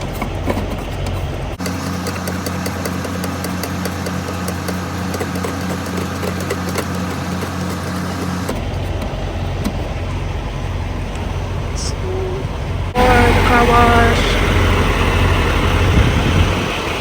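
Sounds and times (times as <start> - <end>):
truck diesel engine idling: 0.0 - 17.0
light regular ticking: 1.2 - 10.2.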